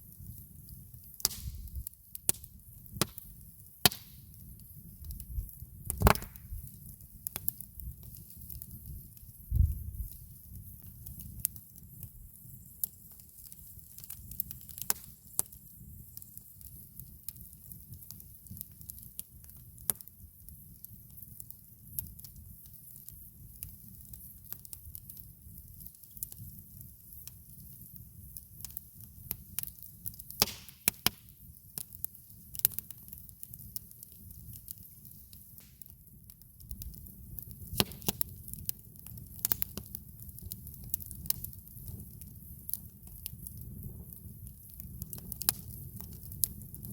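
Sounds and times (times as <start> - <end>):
campfire wood crackling and popping: 0.0 - 46.9.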